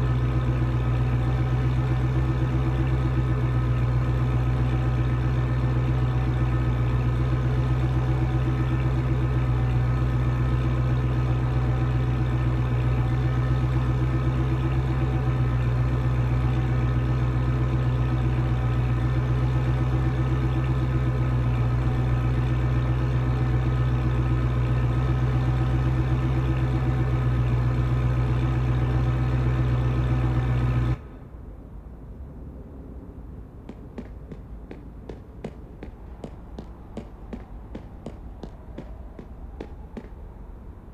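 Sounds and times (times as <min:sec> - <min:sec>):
car engine idling: 0:00.0 - 0:31.2, 0:33.6 - 0:40.9
faint engine ticks: 0:33.6 - 0:40.4.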